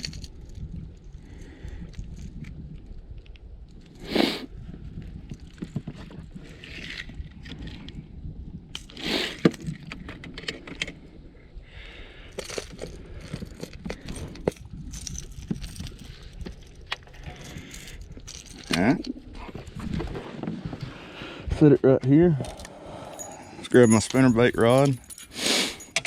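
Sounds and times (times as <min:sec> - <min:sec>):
fishing tackle clicks and rattles: 0:00.0 - 0:03.9, 0:05.0 - 0:08.0, 0:08.7 - 0:11.0, 0:12.3 - 0:19.4, 0:22.4 - 0:26.0
steady low rumble: 0:00.0 - 0:25.3.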